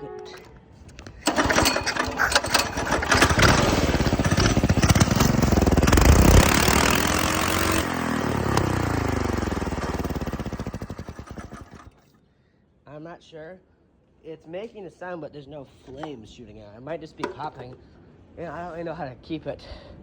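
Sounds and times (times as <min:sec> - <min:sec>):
small engine revving: 0:01.3 - 0:12.1.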